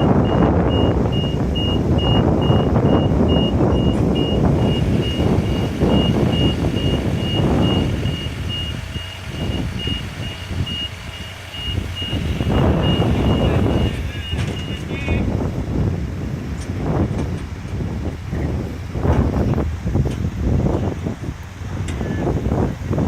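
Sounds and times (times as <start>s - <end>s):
vehicle warning beeper: 0.0s - 15.2s
rumbling engine: 0.0s - 23.0s
wind noise: 0.0s - 23.0s.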